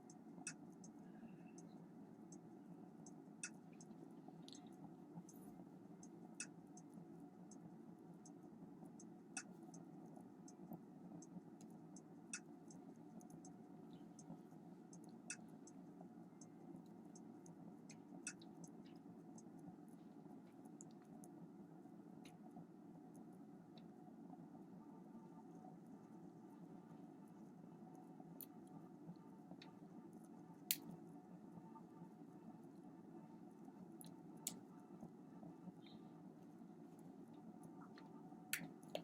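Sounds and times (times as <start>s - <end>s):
faint clicks: 0.0s - 2.4s, 3.0s - 21.4s
steady low hum: 0.0s - 39.0s.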